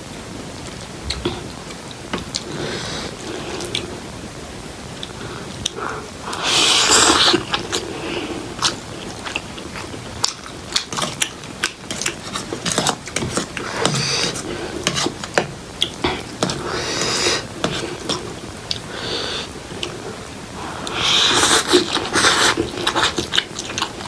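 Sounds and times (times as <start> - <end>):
close chewing of noodles: 5.0 - 24.0.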